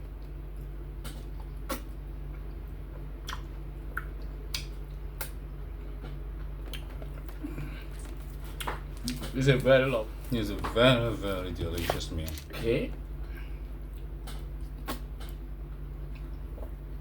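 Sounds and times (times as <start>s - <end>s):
steady low hum: 0.0s - 17.0s
chewing with wet mouth clicks: 0.1s - 7.3s, 13.9s - 16.8s.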